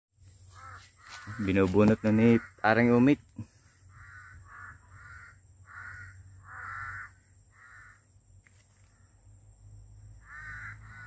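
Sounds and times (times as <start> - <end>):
bird calling: 0.3 - 9.2, 10.2 - 11.0.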